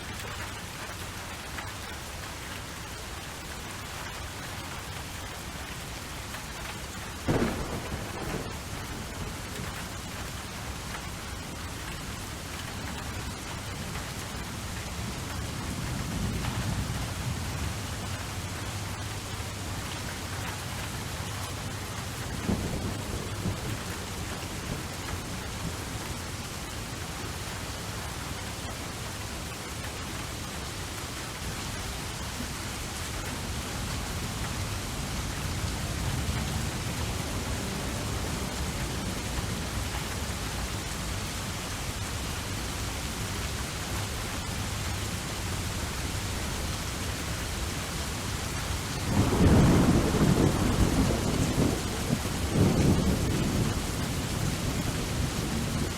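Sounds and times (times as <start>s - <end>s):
steady rain falling: 0.0s - 55.9s
thunder rumbling: 7.1s - 11.5s, 22.2s - 25.3s, 49.0s - 55.9s.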